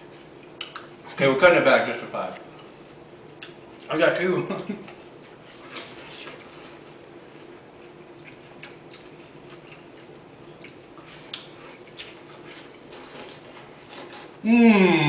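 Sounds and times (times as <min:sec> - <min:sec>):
low steady hum: 0:00.0 - 0:15.0
wet chewing and slurping: 0:04.9 - 0:14.4.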